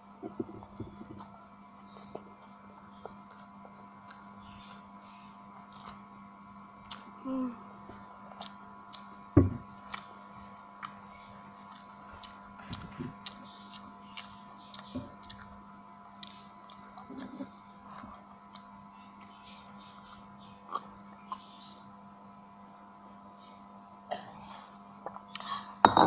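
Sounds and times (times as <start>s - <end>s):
faint steady hum: 0.0s - 26.0s
chewing: 5.7s - 6.0s, 11.6s - 15.6s, 16.2s - 19.3s.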